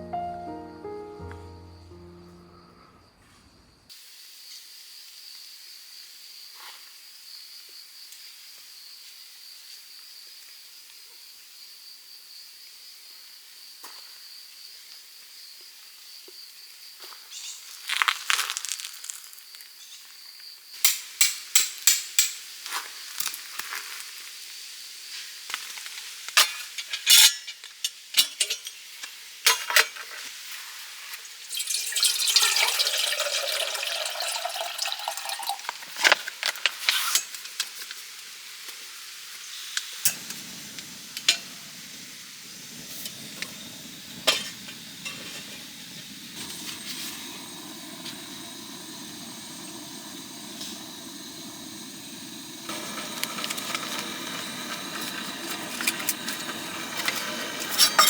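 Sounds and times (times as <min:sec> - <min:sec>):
utensils clinking on pots: 0:26.4 - 0:28.9, 0:29.5 - 0:30.2, 0:31.5 - 0:35.7, 0:44.2 - 0:48.4, 0:52.7 - 0:58.0
food sizzling: 0:30.4 - 0:58.0
steady low hiss: 0:39.5 - 0:58.0.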